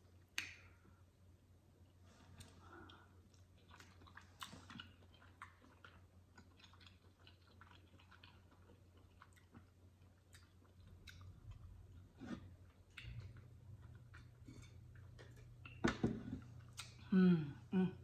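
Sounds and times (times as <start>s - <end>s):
wet chewing mouth clicks: 2.8s - 12.0s.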